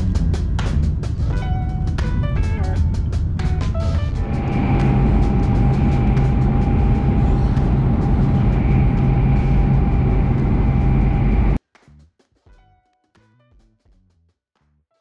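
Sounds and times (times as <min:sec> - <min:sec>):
quiet plucked background music: 0:00.1 - 0:11.3
train rumbling at speed: 0:00.2 - 0:11.6
faint steady whine: 0:04.0 - 0:11.6.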